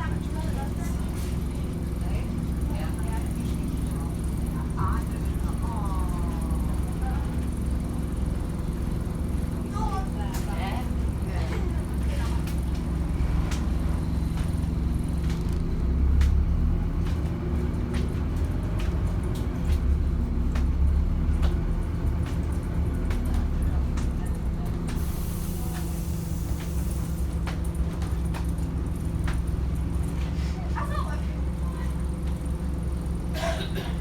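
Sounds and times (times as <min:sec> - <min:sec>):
bus diesel engine droning: 0:00.0 - 0:34.0
air brakes hissing: 0:24.9 - 0:27.4.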